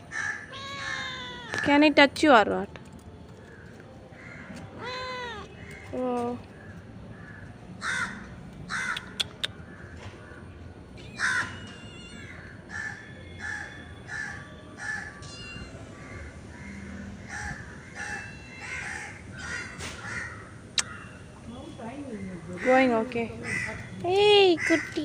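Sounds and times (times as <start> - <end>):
crows cawing: 0.1 - 1.7, 3.4 - 6.0, 6.6 - 10.0, 11.2 - 11.6, 12.2 - 15.1, 16.0 - 21.2, 22.2 - 23.9, 24.5 - 25.0.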